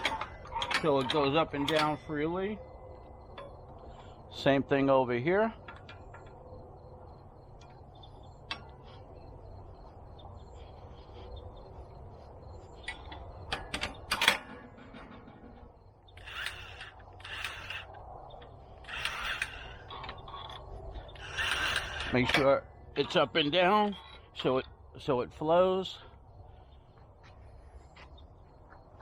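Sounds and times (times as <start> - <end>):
grease gun pump running: 16.2 - 17.9.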